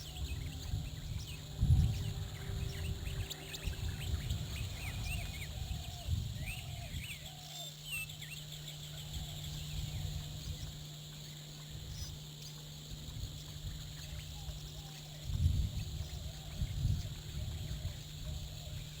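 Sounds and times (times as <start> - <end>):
wild birds chirping: 0.0 - 12.5
steady low hum: 0.0 - 19.0.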